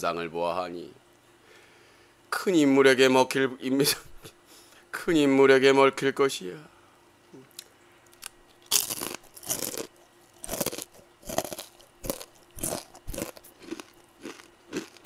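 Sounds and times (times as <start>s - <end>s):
crunchy chewing of fried chicken: 8.2s - 15.0s.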